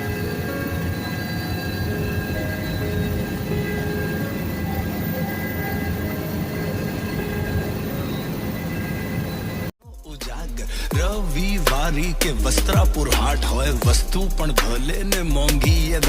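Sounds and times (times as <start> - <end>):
helicopter engine and rotor: 0.0 - 9.7
music: 0.0 - 16.0.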